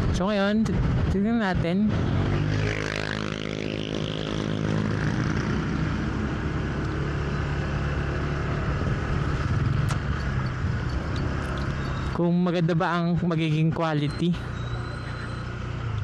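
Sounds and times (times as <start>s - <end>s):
wind and road noise: 0.0s - 16.0s
motorcycle engine running: 2.0s - 13.6s.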